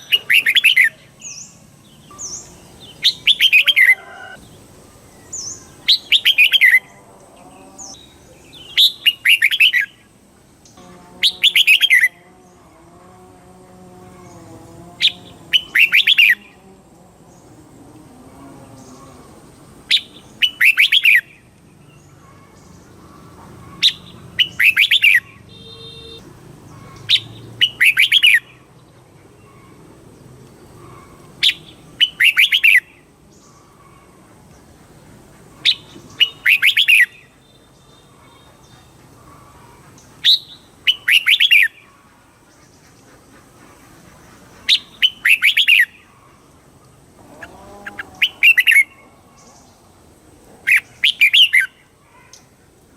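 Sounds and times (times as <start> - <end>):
bulbul singing: 0.0 - 12.9, 13.5 - 16.6, 18.6 - 42.9, 44.3 - 46.5, 47.4 - 49.8, 50.7 - 52.5.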